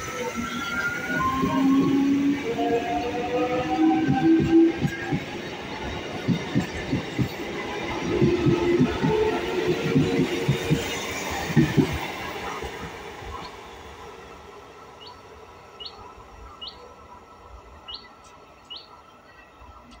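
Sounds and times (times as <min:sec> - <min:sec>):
train wheels knocking on rail joints: 0:03.8 - 0:12.4
bird chirping: 0:15.0 - 0:16.9, 0:17.7 - 0:19.4.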